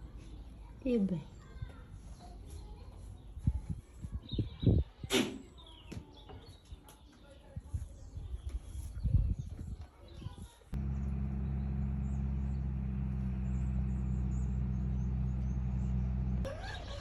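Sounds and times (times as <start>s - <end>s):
low rumble: 10.8s - 16.5s
low engine hum: 10.8s - 17.0s.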